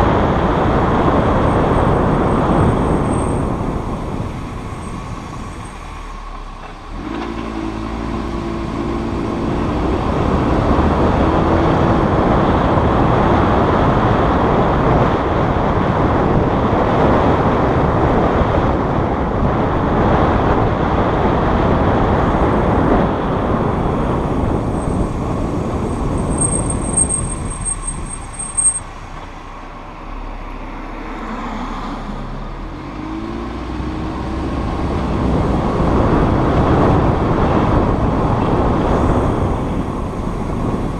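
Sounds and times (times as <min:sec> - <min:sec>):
car engine pulling away: 0:00.0 - 0:40.9
road and tyre noise: 0:00.0 - 0:40.9
high-pitched brake squeal: 0:04.6 - 0:06.2, 0:25.8 - 0:29.1.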